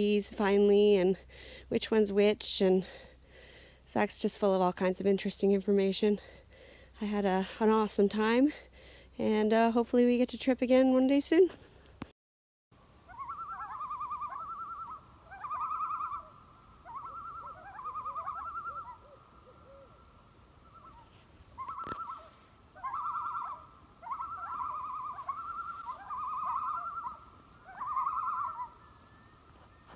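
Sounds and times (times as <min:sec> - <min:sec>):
bird trilling calls: 0:13.1 - 0:29.9.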